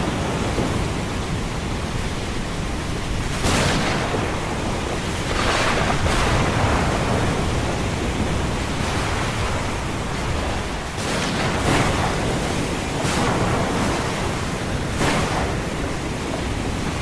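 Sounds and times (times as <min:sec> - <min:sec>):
ocean surf washing: 0:00.0 - 0:17.0
waves breaking: 0:00.0 - 0:17.0.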